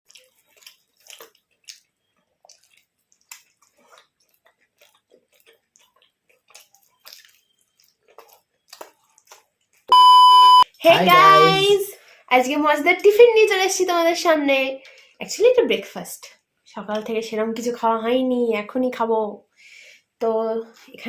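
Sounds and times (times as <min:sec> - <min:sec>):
chewing and biting: 0:00.0 - 0:09.9
soft wet squishing: 0:00.1 - 0:10.2.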